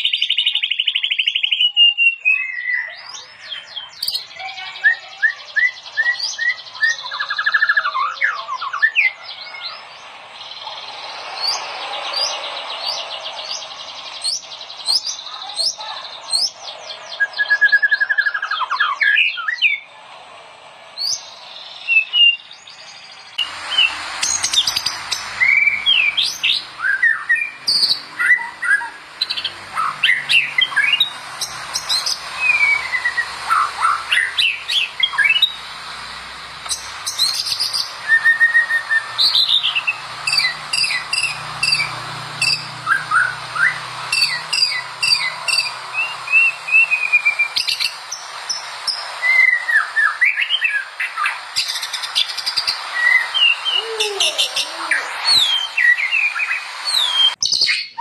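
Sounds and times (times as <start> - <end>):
bird singing whistled song: 0.0 - 19.9, 21.0 - 35.7, 36.6 - 58.0.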